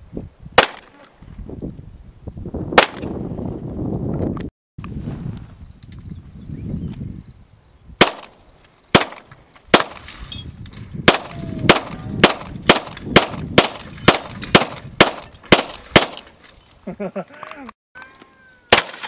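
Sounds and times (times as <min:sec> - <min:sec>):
rifle shots: 0:00.6 - 0:00.9, 0:08.0 - 0:10.0, 0:11.1 - 0:16.3, 0:18.7 - 0:19.0.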